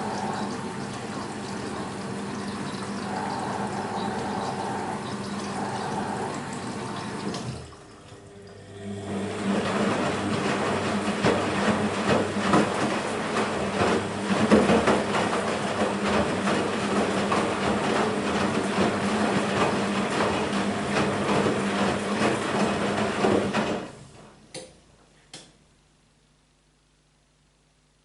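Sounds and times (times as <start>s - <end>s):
water running through washing machine: 0.0s - 24.8s
laundry sloshing and knocking: 9.4s - 24.0s.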